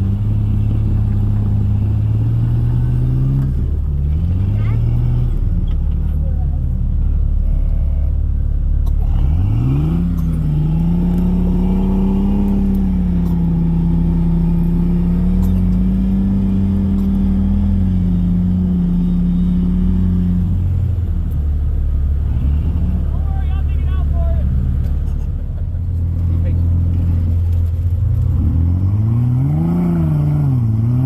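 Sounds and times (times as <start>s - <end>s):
car engine revving: 0.0s - 31.0s
low engine rumble: 0.0s - 31.0s.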